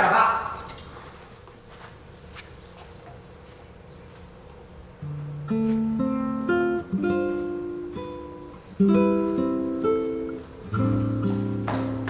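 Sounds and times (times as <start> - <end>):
plucked string instrument music: 5.0 - 12.0.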